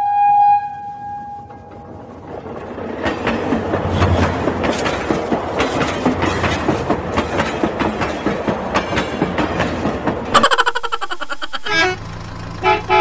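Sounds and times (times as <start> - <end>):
train wheels clattering: 1.3 - 10.5.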